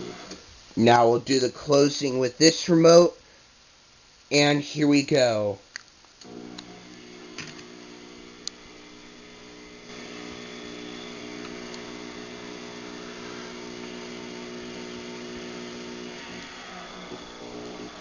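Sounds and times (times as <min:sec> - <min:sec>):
garage door opener motor humming: 0:00.0 - 0:00.4, 0:06.2 - 0:18.0.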